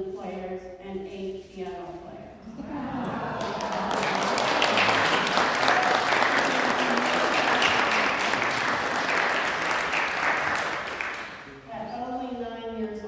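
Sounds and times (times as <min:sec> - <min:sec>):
audience applauding: 0:02.6 - 0:11.6.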